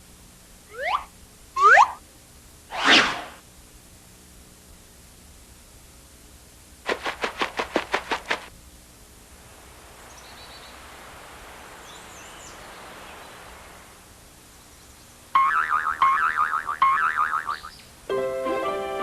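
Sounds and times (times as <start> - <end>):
faint hiss: 0.0 - 15.4
faint high chirps: 0.7 - 2.0.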